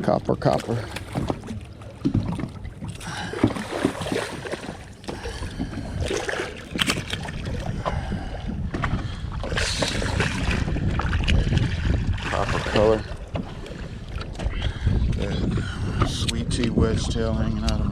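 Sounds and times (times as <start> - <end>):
water lapping against boat hull: 0.0 - 17.9
knocks on boat: 1.0 - 2.6
wind on microphone: 1.1 - 17.9.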